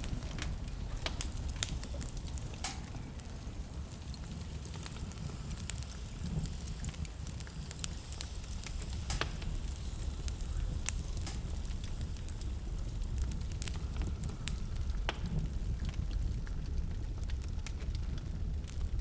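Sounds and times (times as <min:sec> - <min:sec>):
fire crackles and pops: 0:00.0 - 0:19.0
fire flames rumbling: 0:00.0 - 0:19.0.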